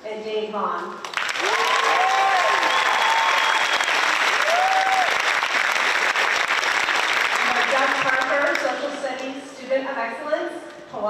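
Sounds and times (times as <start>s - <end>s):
audience applauding: 1.0s - 8.8s
drawn-out cheers: 1.4s - 5.4s.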